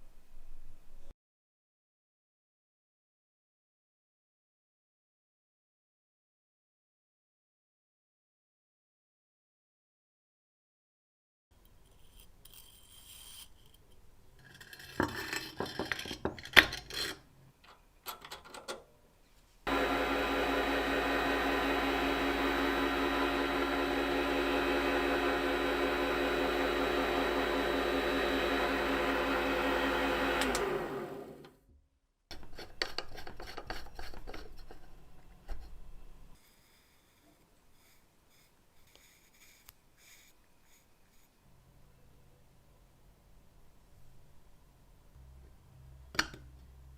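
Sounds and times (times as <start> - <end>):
metal parts scraping: 11.8 - 17.3
machine hum: 19.7 - 31.6
power tool spinning down: 19.7 - 31.6.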